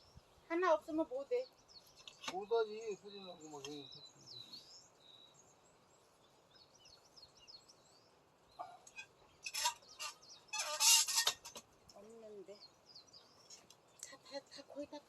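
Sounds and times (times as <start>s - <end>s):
small birds chirping: 0.0s - 15.0s
harsh scratchy bursts: 9.5s - 11.6s.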